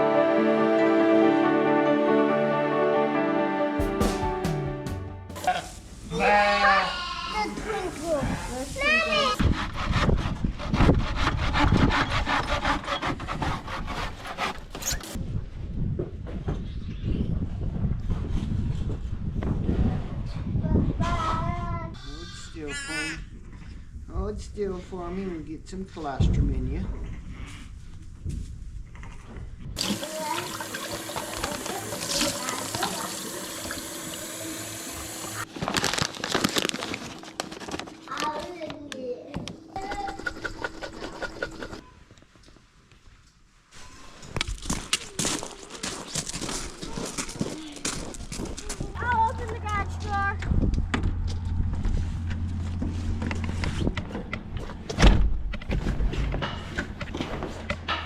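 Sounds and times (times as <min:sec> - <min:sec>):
handsaw cutting wood: 0:08.9 - 0:15.2
water running from a tap: 0:29.8 - 0:35.4.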